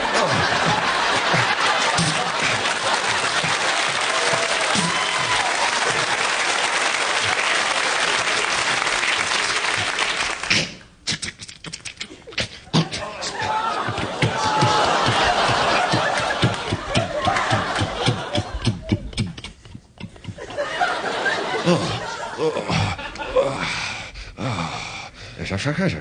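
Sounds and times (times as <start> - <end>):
audience applauding and cheering: 0.0 - 10.5, 13.3 - 19.0
whoops: 4.1 - 6.1.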